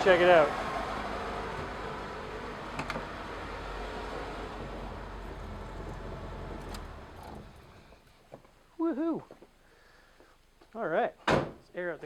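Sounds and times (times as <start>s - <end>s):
car engine idling roughly: 4.6s - 8.0s.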